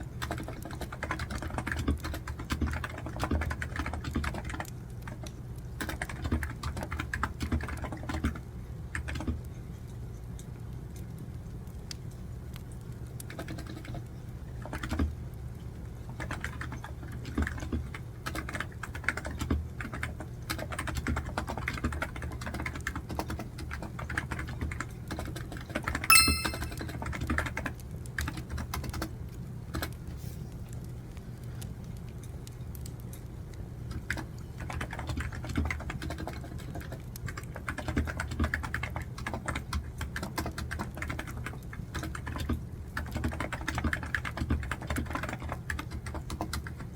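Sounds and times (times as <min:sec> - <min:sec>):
typing on computer keyboard: 0:00.2 - 0:09.4, 0:13.2 - 0:15.1, 0:16.2 - 0:29.1, 0:33.9 - 0:46.9
short ringing chime: 0:26.1 - 0:26.9.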